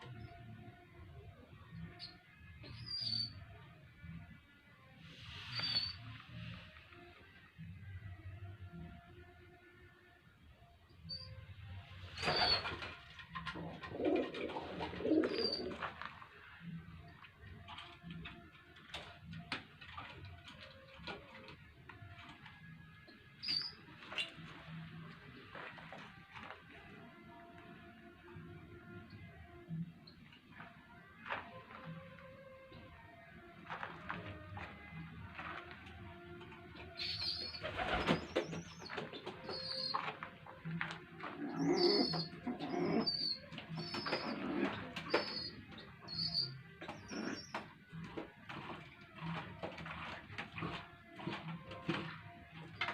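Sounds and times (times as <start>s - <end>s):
pigeon squabs begging squeaks: 5.5s - 6.0s, 12.2s - 12.9s, 15.0s - 15.8s, 23.4s - 23.9s, 36.9s - 40.1s, 41.2s - 47.7s.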